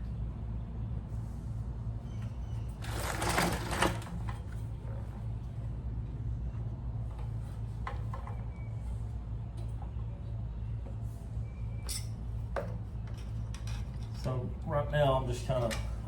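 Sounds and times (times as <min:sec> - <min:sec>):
steady low hum: 0:00.0 - 0:16.0
rustling and scraping of parts: 0:02.1 - 0:05.3, 0:10.9 - 0:14.4.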